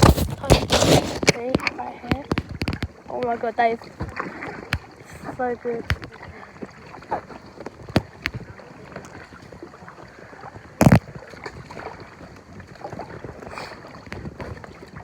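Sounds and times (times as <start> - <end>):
water splashing around kayak: 0.0 - 15.0
light knocks on hull: 4.0 - 5.0, 5.8 - 6.4.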